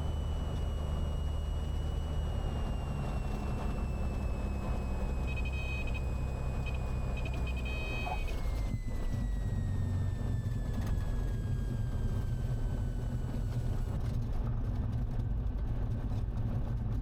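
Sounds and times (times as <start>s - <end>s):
plane engine droning: 0.0s - 14.2s
short beeps: 3.9s - 8.7s.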